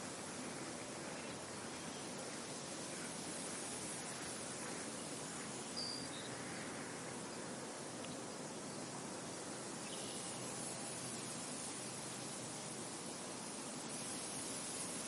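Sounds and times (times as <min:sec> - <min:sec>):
wind blowing through a field: 0:00.0 - 0:15.0
bird chirping: 0:05.7 - 0:06.4.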